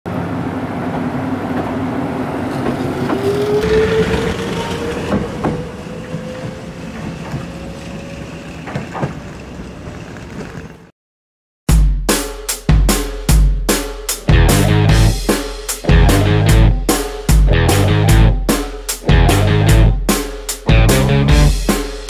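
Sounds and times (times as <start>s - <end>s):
train rumble: 0.1s - 10.9s, 15.9s - 16.8s, 17.4s - 18.4s
electric train motor whine: 0.3s - 10.8s
wheels clacking over rail joints: 2.4s - 10.9s.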